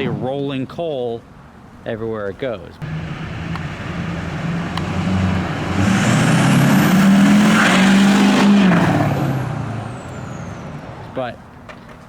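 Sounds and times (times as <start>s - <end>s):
diesel truck engine revving: 2.8s - 11.2s
high whistle: 9.9s - 10.8s.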